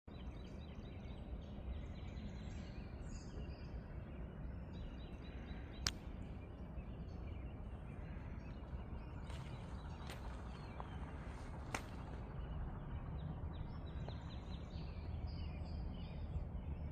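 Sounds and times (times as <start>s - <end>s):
steady low rumble: 0.1s - 16.9s.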